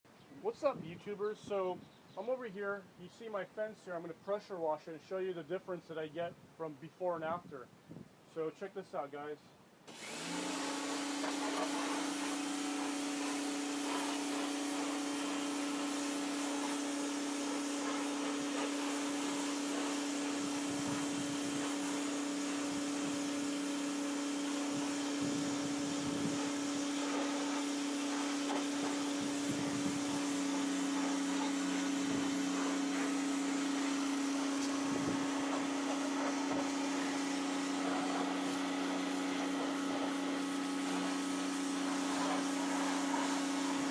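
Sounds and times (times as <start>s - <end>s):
pressure washer motor hum: 9.9s - 43.9s
water spray hiss: 9.9s - 43.9s.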